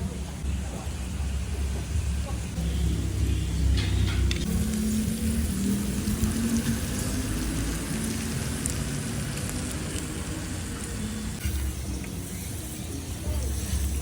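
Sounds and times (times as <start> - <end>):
low steady hum: 0.0 - 8.2
pork sizzling on a grill pan: 1.3 - 14.0.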